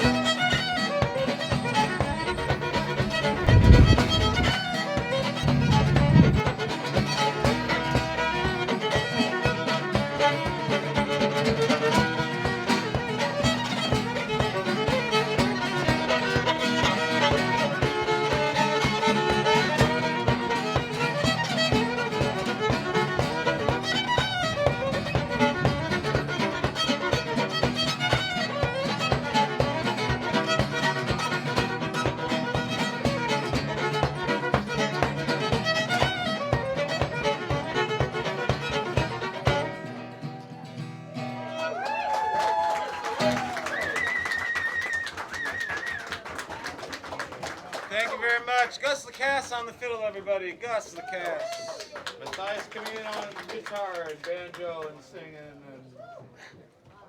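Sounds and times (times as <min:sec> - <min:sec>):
plucked-string accompaniment: 0:00.0 - 0:41.8
fiddle playing folk tune: 0:00.0 - 0:42.2, 0:43.1 - 0:46.5.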